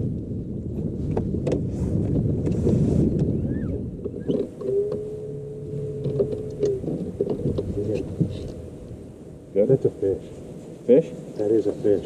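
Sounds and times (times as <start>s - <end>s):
water noise: 0.0s - 11.4s
wind: 0.0s - 12.0s
steady whine: 3.1s - 12.0s
light clicks and knocks: 6.0s - 8.6s.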